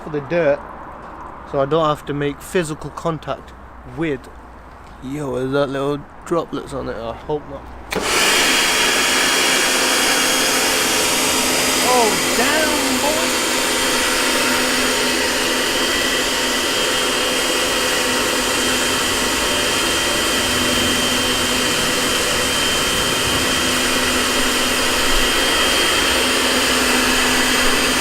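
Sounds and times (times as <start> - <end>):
pressure washer motor whine: 7.9 - 28.0.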